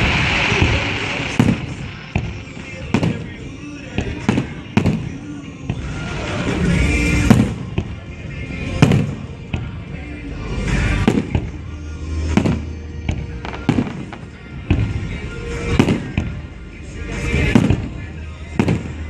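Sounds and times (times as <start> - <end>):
firework shells bursting: 0.0 - 8.0.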